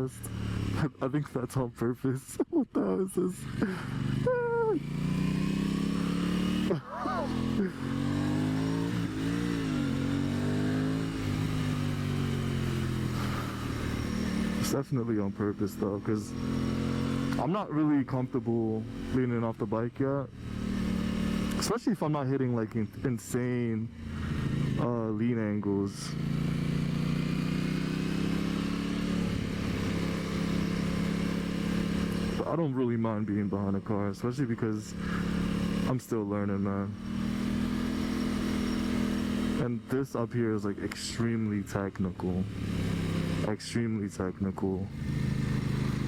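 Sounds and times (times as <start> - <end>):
motorcycle engine running: 0.0 - 1.0, 3.2 - 21.8, 23.8 - 46.0.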